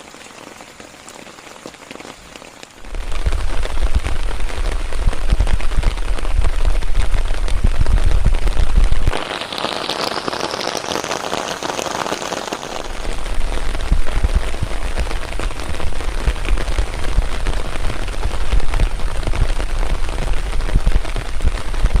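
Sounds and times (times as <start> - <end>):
rain pattering on leaves: 0.0 - 22.0
deep rumble: 2.8 - 9.2, 12.9 - 22.0.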